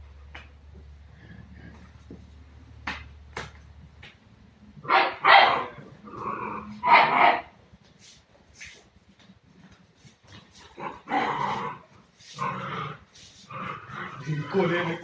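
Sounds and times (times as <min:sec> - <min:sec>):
puppy barking: 0:04.8 - 0:05.8, 0:06.7 - 0:07.5.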